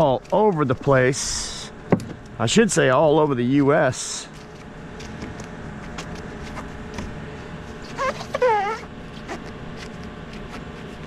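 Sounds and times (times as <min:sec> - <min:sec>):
dog whining: 0:07.8 - 0:11.0.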